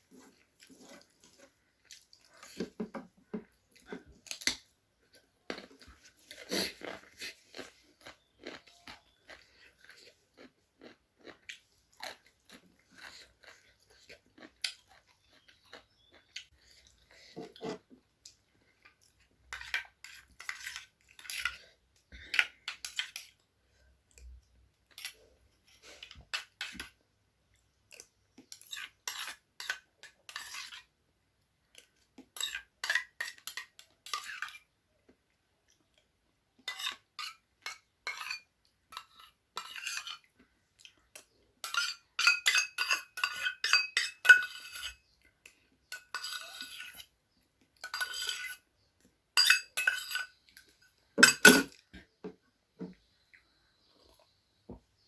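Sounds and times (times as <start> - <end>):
spoon scraping a plate: 28.5 - 30.9, 36.7 - 40.3, 41.6 - 45.0, 46.0 - 47.1, 47.8 - 48.6, 49.4 - 50.4, 51.2 - 51.8.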